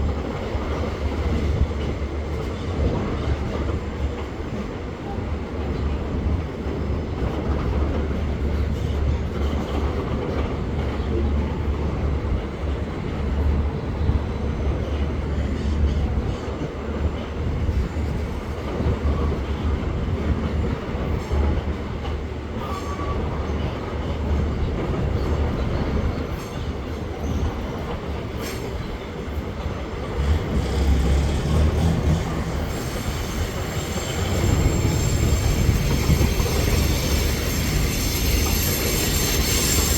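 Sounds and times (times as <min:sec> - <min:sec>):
freight train wheels rumbling: 0:00.0 - 0:39.9
wheel squeal: 0:30.2 - 0:39.9.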